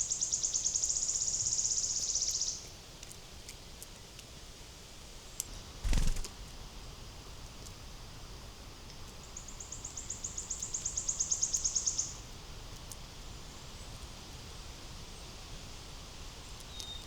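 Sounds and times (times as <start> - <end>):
small bird trilling: 5.8 - 6.3.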